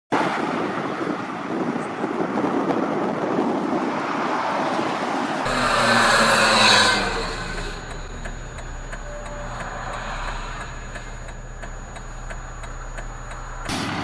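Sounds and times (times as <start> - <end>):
rushing vehicle noise: 0.1 - 14.0
engine hum: 5.4 - 14.0.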